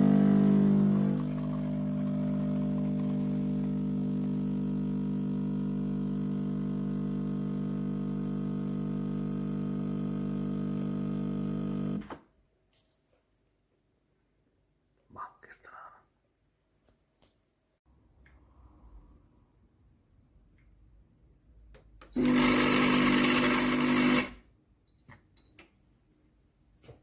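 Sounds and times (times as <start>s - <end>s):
espresso machine pump humming: 0.0s - 12.0s, 22.2s - 24.4s.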